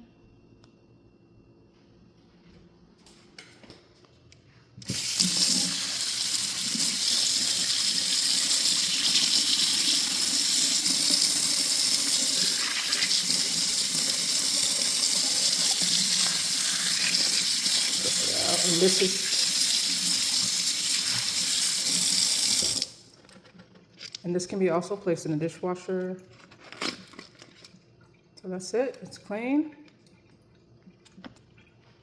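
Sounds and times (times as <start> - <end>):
tap water running into sink: 4.9 - 23.0.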